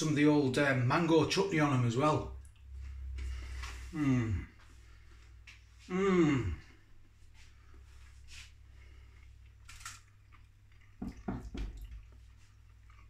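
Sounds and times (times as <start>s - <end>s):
man chewing food: 6.9s - 13.0s.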